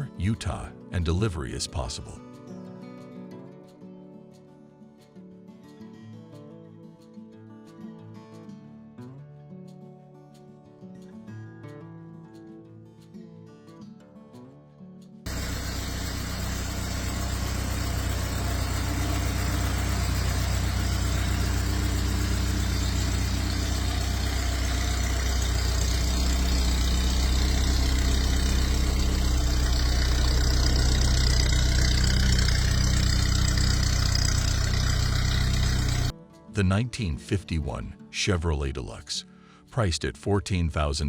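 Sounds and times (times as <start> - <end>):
car engine idling: 15.3 - 36.1.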